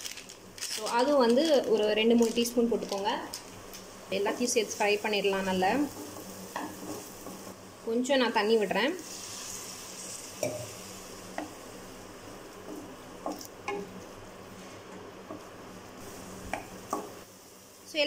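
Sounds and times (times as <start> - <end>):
masala sizzling in oil: 0.0 - 18.0
spatula scraping and tapping pan: 5.3 - 7.5.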